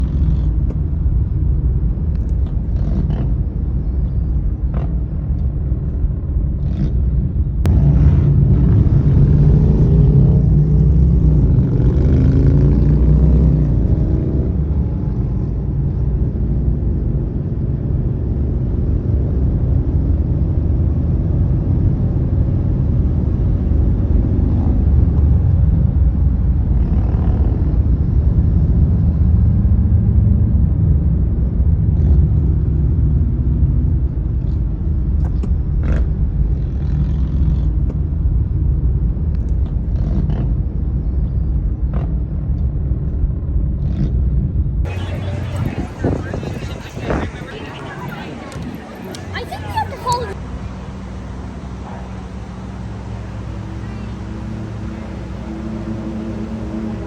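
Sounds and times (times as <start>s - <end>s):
road traffic rumble: 0.0s - 57.0s
vehicle engine accelerating: 0.0s - 57.0s.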